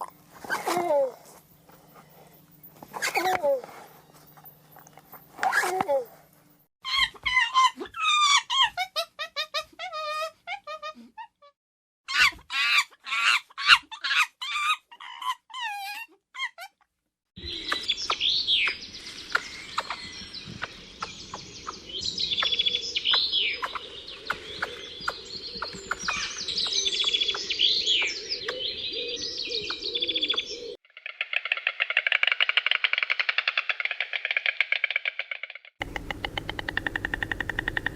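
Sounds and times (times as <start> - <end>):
animal squeaky calls: 6.8 - 11.0, 12.1 - 16.8
birds chirping and singing: 17.4 - 30.8.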